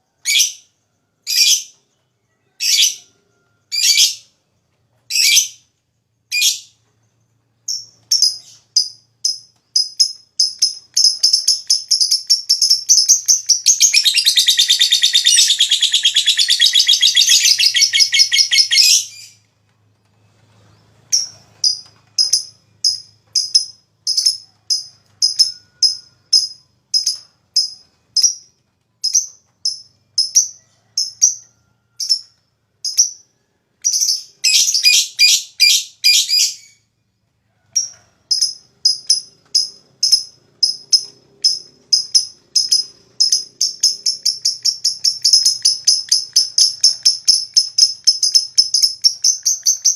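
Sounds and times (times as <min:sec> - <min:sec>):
lovebird high chirps: 0:01.3 - 0:01.8, 0:02.4 - 0:04.3, 0:05.1 - 0:05.6, 0:07.6 - 0:19.5, 0:21.1 - 0:36.9, 0:37.7 - 0:49.9
lovebird rattling trill: 0:07.7 - 0:19.3, 0:21.1 - 0:32.2, 0:37.8 - 0:49.9.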